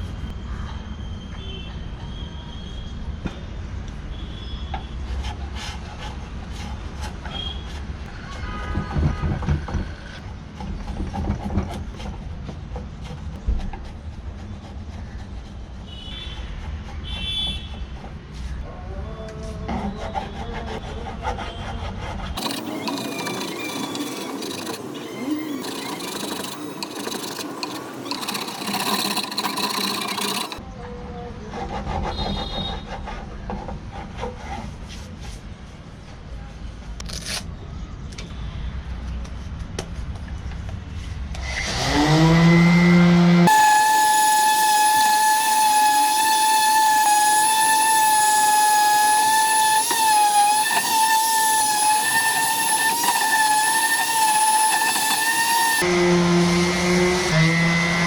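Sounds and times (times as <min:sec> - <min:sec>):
electric power tool whining: 0:22.4 - 0:30.6, 0:41.5 - 0:58.0
rasp scraping wood: 0:22.4 - 0:30.6, 0:43.4 - 0:55.8.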